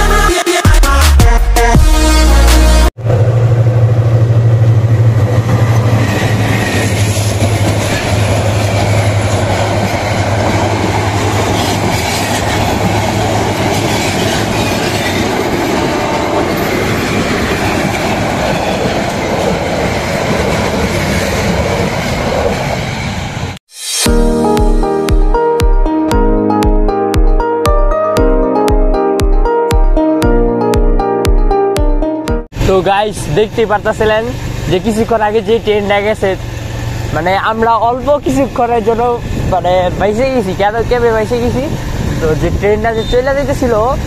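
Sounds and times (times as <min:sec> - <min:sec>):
strong low drone: 0:02.0 - 0:06.1
train rumbling past: 0:03.0 - 0:23.6, 0:32.5 - 0:44.0.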